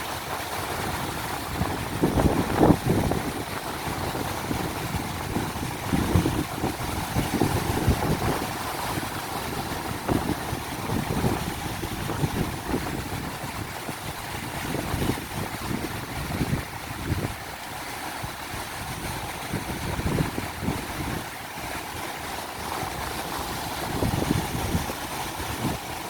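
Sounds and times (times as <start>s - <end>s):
ocean surf washing in: 0.0s - 26.0s
wind buffeting microphone: 0.8s - 26.0s.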